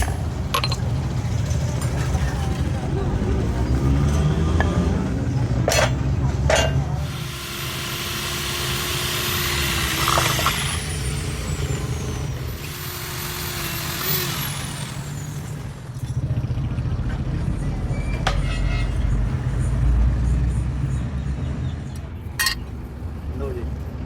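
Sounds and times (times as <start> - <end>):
workshop machine rumbling: 0.0 - 18.5.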